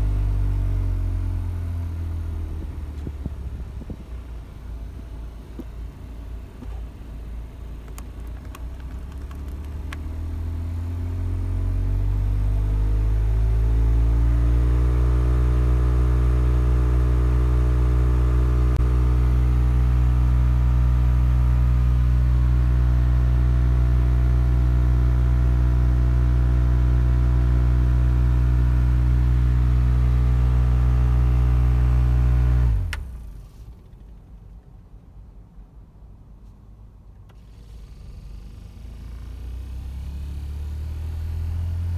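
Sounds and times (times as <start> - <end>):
car air conditioning droning hum: 1.2 - 10.9.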